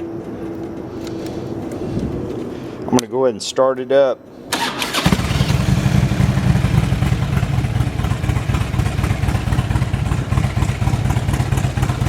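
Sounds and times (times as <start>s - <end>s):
motorcycle engine idling: 5.1s - 12.0s.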